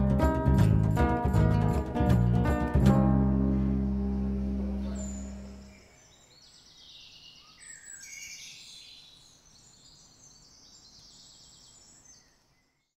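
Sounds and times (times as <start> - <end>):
songbirds singing: 4.1 - 13.0.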